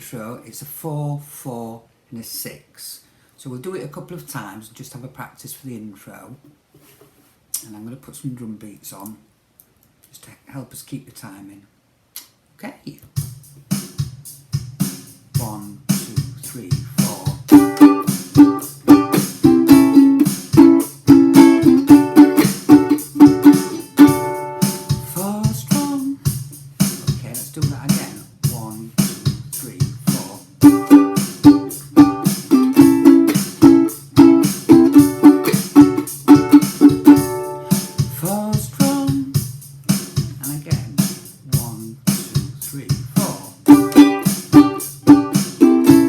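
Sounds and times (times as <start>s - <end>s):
drum machine beat: 13.1s - 46.0s
ukulele strumming: 17.0s - 26.2s, 30.1s - 39.3s, 43.6s - 46.0s.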